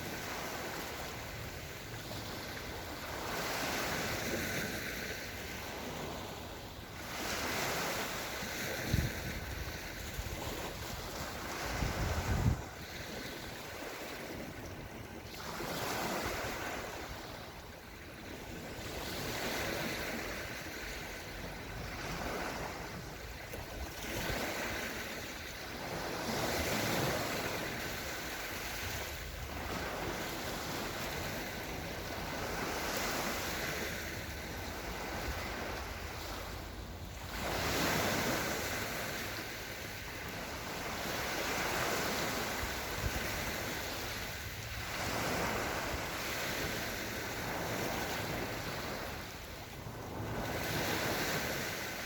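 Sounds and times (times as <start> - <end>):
small waves washing onto shore: 0.0 - 52.0.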